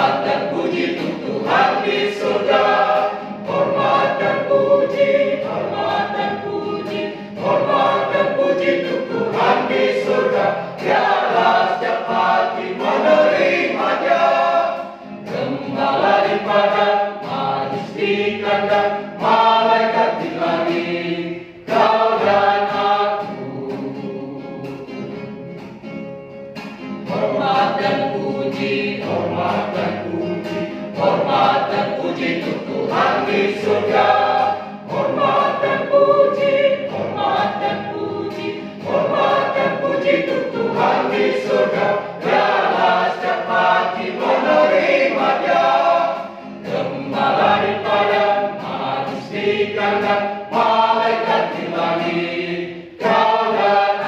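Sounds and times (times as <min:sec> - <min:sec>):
mixed choir singing a hymn: 0:00.0 - 0:25.4, 0:27.0 - 0:54.0.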